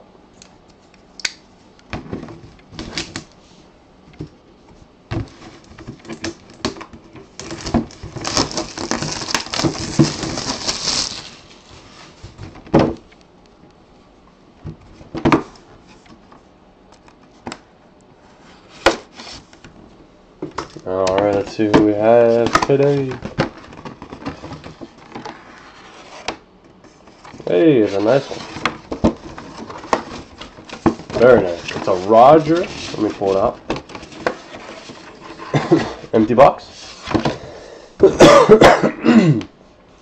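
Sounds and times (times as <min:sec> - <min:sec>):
packaging rustling: 0:05.4 - 0:12.4, 0:27.1 - 0:35.6.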